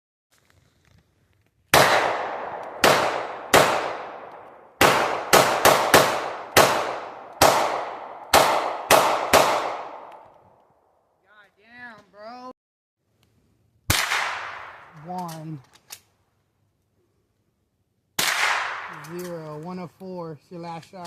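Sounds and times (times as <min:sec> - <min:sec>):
echoing gunshots: 0:01.7 - 0:10.2, 0:13.9 - 0:14.9, 0:18.2 - 0:19.0.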